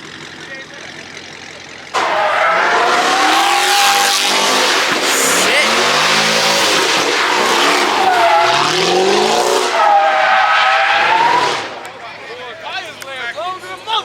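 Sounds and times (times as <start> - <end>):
car tires squealing: 1.9 - 12.0
engine revving hard: 2.0 - 12.0.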